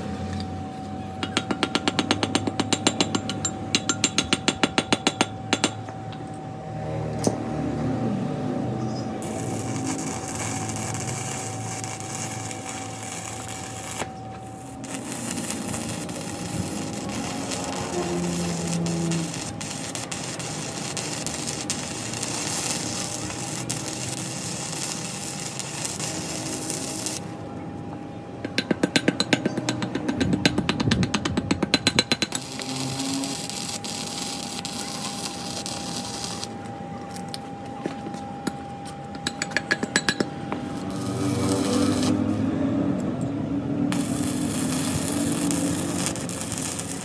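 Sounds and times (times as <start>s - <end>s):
metalworking power tool running: 9.2s - 27.5s, 29.8s - 36.7s, 39.1s - 43.0s, 43.9s - 47.0s.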